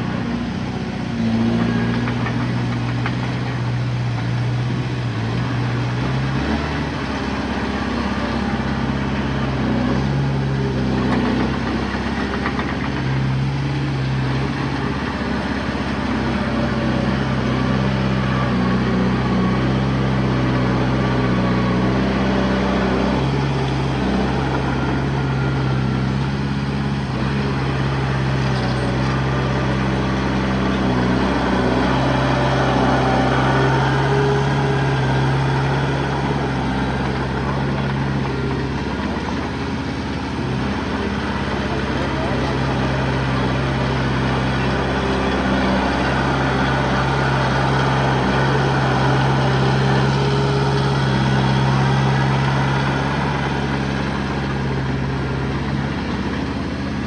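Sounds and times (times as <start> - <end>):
heavy machinery diesel engine: 0.0 - 57.0.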